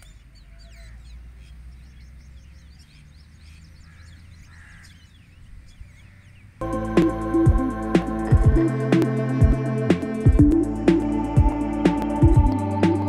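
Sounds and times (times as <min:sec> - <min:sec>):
birds chirping: 0:00.0 - 0:13.0
steady low rumble: 0:06.6 - 0:13.0.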